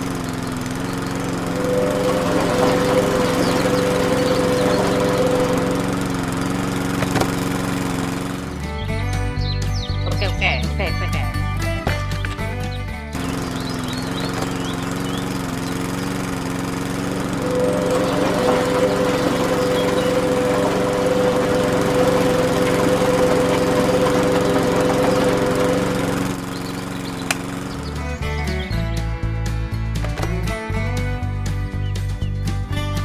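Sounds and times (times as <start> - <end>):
small motor whining: 0.0 - 8.8, 13.2 - 28.8.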